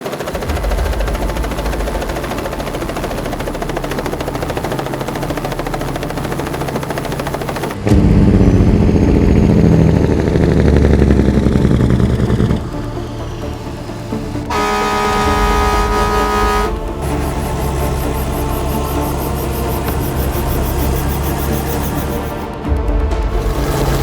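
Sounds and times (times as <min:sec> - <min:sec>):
diesel truck engine running: 0:00.3 - 0:24.0.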